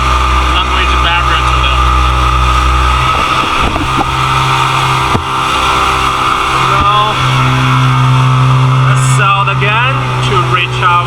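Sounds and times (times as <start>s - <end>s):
motorboat engine running: 0.0s - 11.0s
sharp knocks: 5.0s - 5.6s.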